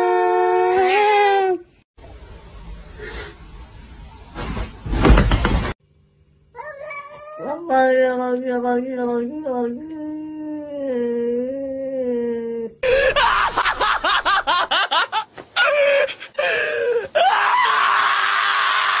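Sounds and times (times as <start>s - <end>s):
cat yowling: 6.6s - 7.6s
loud sustained scream: 17.2s - 19.0s.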